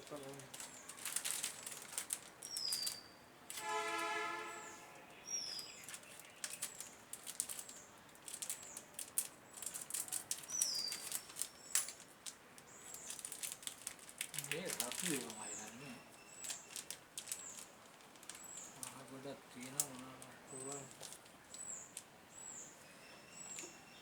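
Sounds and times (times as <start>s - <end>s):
steady horn-like tone: 3.6s - 5.1s.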